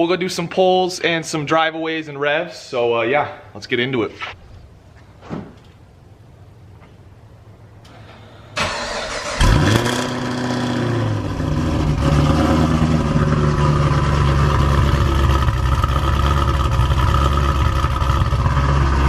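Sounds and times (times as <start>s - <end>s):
car engine starting and idling: 7.8s - 19.0s.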